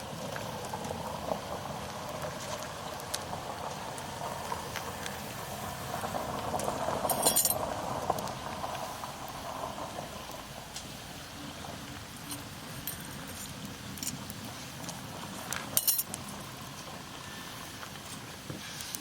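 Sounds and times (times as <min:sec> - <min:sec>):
steady low hiss: 0:00.0 - 0:19.0
light clinks: 0:07.1 - 0:07.6.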